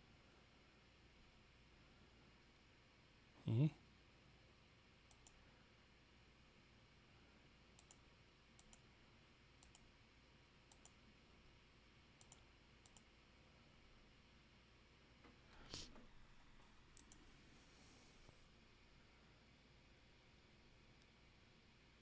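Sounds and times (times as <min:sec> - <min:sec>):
computer mouse clicks: 0:05.1 - 0:05.4, 0:07.7 - 0:08.9, 0:09.6 - 0:09.9, 0:10.6 - 0:11.0, 0:12.2 - 0:13.1, 0:16.9 - 0:17.3.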